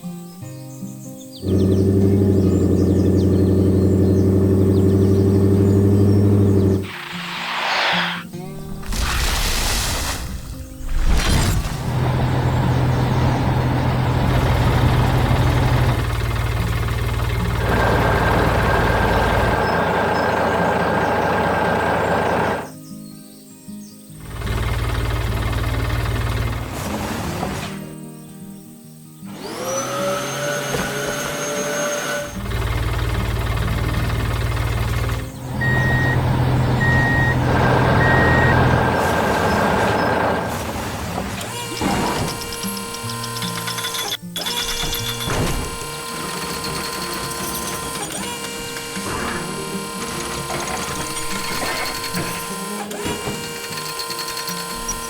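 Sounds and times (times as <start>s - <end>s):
steady high whine: 6.8s - 9.0s
heavy machinery engine rumble: 11.3s - 22.7s, 24.2s - 27.6s, 32.3s - 43.8s
reversing beeps: 35.6s - 38.9s.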